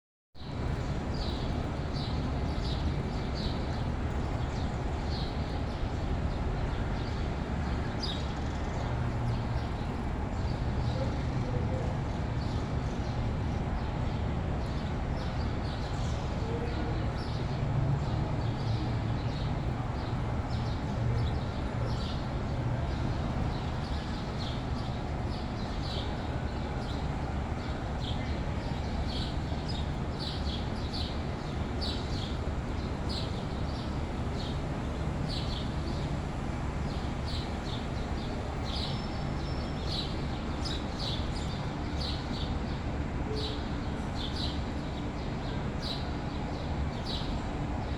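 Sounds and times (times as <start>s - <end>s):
small birds chirping: 19.2s - 42.8s.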